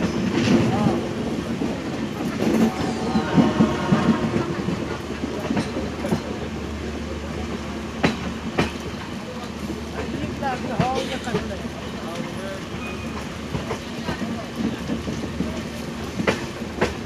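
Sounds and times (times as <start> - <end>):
train wheels clickety-clack: 0.0 - 17.0.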